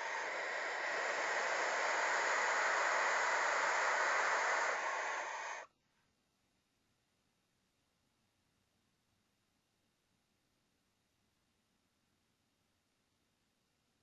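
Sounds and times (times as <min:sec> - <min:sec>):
owls hissing and screeching: 0:00.0 - 0:05.6.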